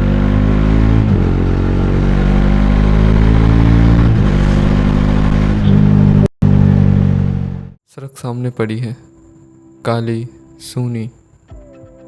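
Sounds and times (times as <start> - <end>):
motorcycle engine accelerating: 0.0 - 7.8.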